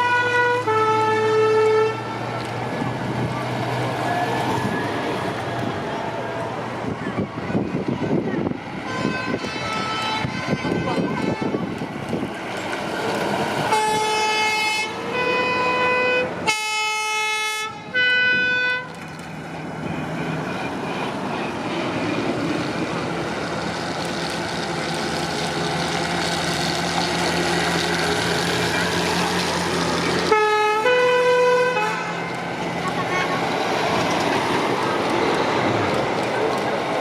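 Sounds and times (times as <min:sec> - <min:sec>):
fire truck horn blasts: 0:00.0 - 0:02.4, 0:08.8 - 0:11.7, 0:13.7 - 0:19.0, 0:30.0 - 0:32.3
truck engines rolling past: 0:00.0 - 0:37.0.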